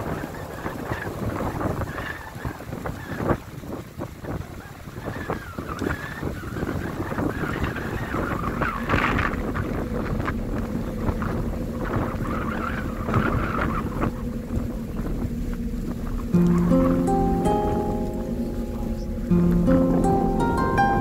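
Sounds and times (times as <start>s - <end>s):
wind buffeting microphone: 0.0s - 21.0s
low outdoor rumble: 7.8s - 21.0s
guitar music: 16.3s - 21.0s.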